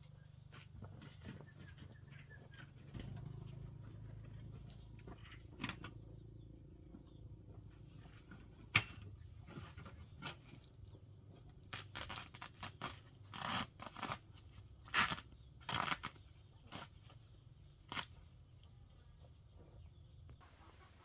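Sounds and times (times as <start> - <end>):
scraping and crunching: 7.7 - 18.8.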